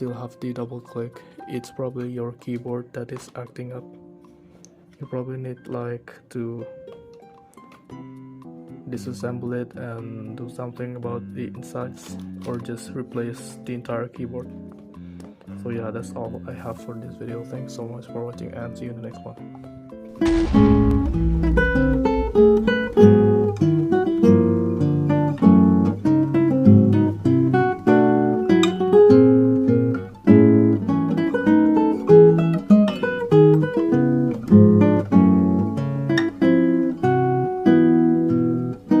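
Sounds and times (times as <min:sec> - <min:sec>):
acoustic guitar plucked notes: 0:20.2 - 0:39.0.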